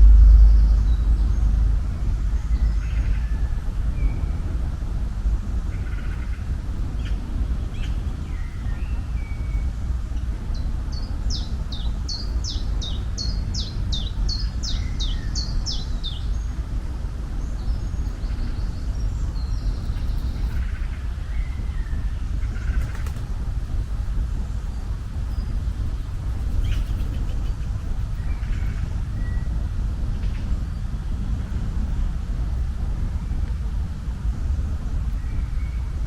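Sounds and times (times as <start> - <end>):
steady low rumble: 0.0 - 36.0.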